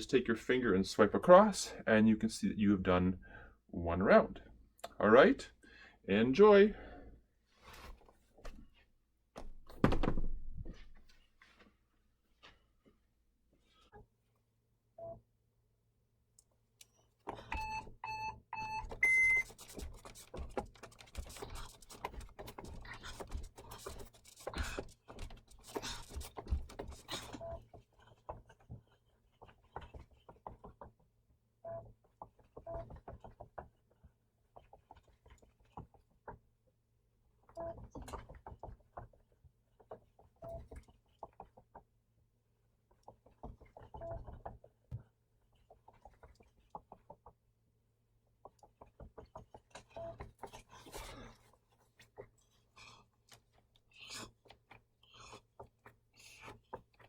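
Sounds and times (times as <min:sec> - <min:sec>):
footfalls and thumps on floor: 0:09.4 - 0:11.6.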